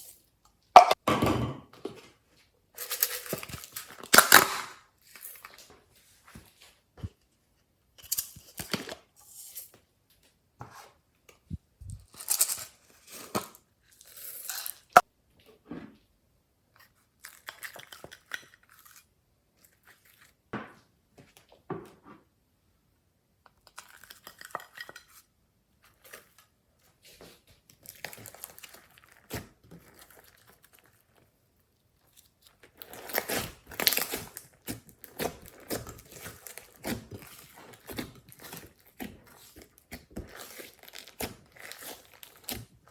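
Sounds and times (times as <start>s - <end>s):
sticky slime crackling: 32.0s - 42.9s.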